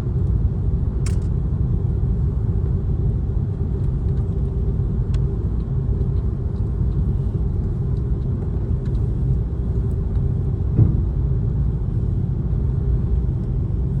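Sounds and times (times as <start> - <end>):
jet engine cabin rumble: 0.0 - 14.0
brief knock: 10.8 - 11.0.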